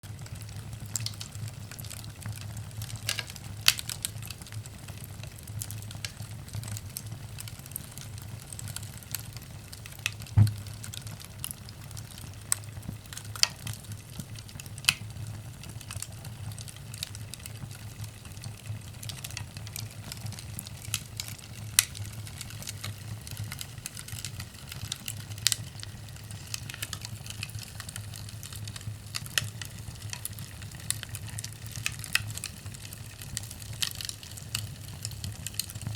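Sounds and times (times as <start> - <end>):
firewood crackling and popping: 0.0 - 35.9.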